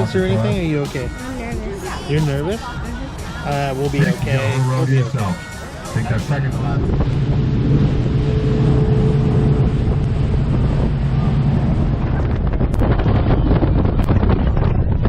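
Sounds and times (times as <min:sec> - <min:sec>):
boat engine droning: 0:00.0 - 0:15.0
wind buffeting microphone: 0:04.0 - 0:15.0.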